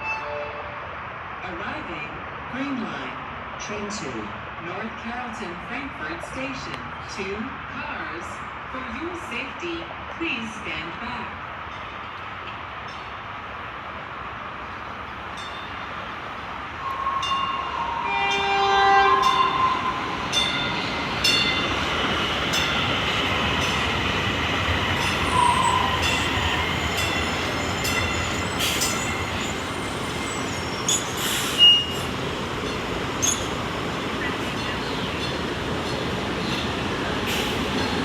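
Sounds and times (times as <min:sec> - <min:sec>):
wheels squealing on rails: 0:16.7 - 0:38.0
train horn: 0:16.8 - 0:20.0, 0:25.3 - 0:26.2.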